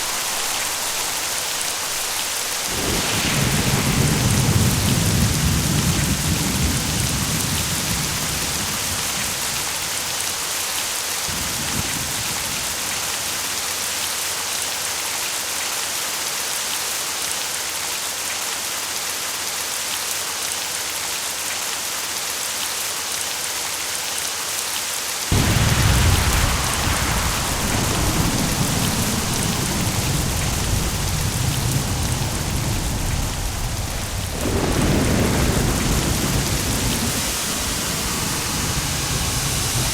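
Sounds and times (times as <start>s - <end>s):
rolling thunder: 0.0s - 14.0s, 25.3s - 39.9s
steady rain: 0.0s - 39.9s.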